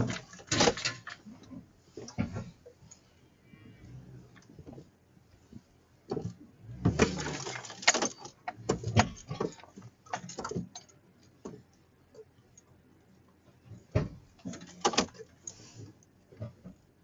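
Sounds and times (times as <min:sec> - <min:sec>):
knocks clunks and rattles: 0:00.0 - 0:02.8, 0:04.1 - 0:12.4, 0:13.7 - 0:15.4, 0:16.3 - 0:16.9.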